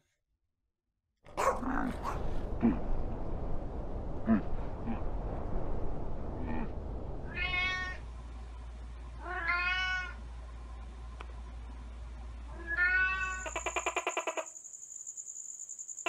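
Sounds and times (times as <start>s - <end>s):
cat meowing: 7.3s - 8.0s, 9.2s - 10.2s, 12.5s - 13.8s.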